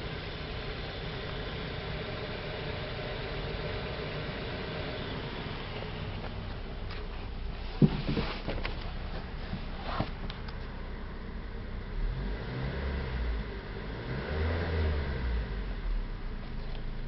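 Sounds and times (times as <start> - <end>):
car engine revving: 11.4 - 17.0.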